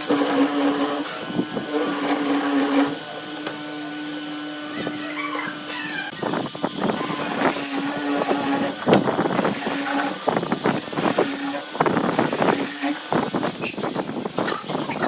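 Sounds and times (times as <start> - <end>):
workshop tool humming: 0.0 - 15.0.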